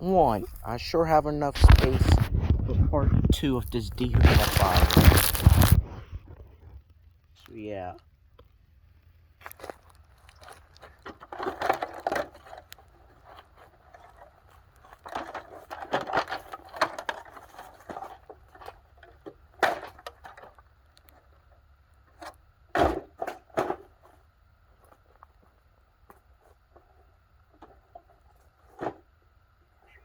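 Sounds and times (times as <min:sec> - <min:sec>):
scraping and clattering of parts: 0:09.6 - 0:21.4, 0:22.1 - 0:25.5.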